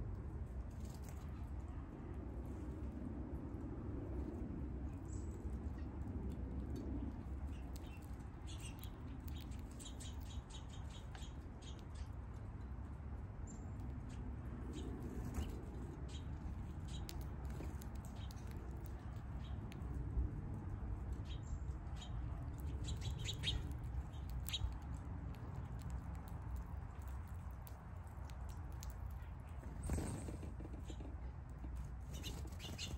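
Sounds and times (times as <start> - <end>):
low outdoor rumble: 0.0 - 32.9
small birds chirping: 6.7 - 20.0, 21.0 - 32.9.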